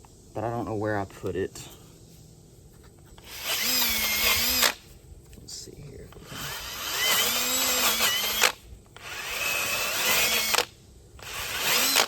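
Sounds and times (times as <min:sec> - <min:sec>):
power drill sanding metal: 0:03.2 - 0:04.8, 0:06.2 - 0:10.6, 0:11.2 - 0:12.0.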